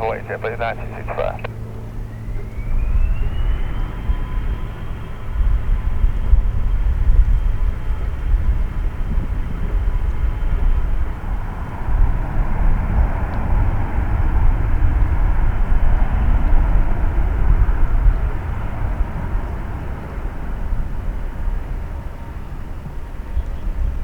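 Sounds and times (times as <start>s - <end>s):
jet engines roaring: 0.0s - 1.5s.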